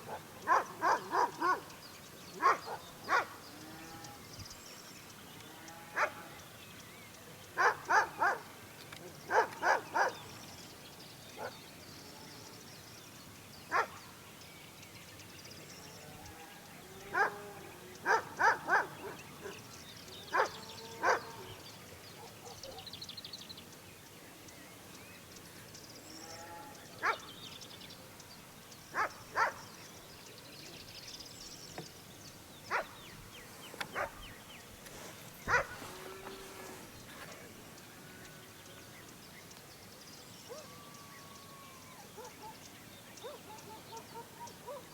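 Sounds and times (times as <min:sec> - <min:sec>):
birds chirping faintly: 0:00.0 - 0:44.9
dog barking: 0:00.1 - 0:01.6, 0:02.4 - 0:03.3, 0:07.6 - 0:08.4, 0:09.3 - 0:10.2, 0:13.7 - 0:14.0, 0:17.1 - 0:17.4, 0:18.0 - 0:19.2, 0:20.3 - 0:21.5, 0:22.2 - 0:22.9, 0:27.0 - 0:27.2, 0:29.0 - 0:29.6, 0:32.7 - 0:32.9, 0:33.9 - 0:34.2, 0:35.5 - 0:35.8, 0:43.2 - 0:44.9.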